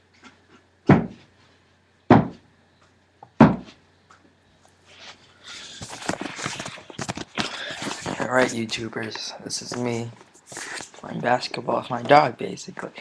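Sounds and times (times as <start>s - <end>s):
heavy thuds: 0.9s - 1.3s, 3.4s - 3.8s.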